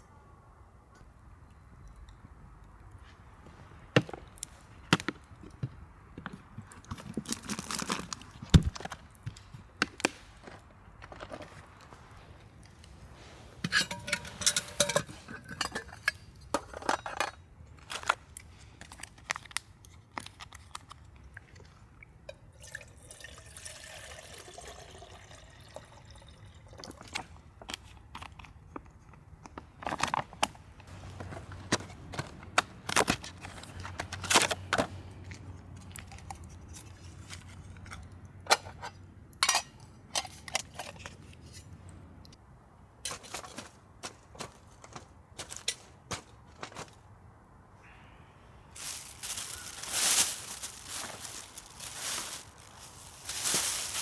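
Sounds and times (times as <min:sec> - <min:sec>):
metal pots and utensils clinking: 0:13.6 - 0:17.4, 0:38.5 - 0:41.0
liquid pouring: 0:22.6 - 0:27.0.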